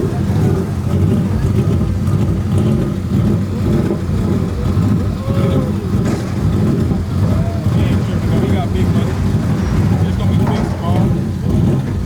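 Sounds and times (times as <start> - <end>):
truck engine running loud: 0.0 - 12.0.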